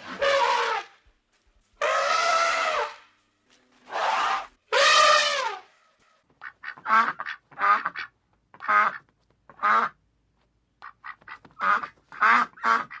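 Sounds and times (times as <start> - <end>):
duck quacking: 6.4 - 10.0, 10.8 - 13.0.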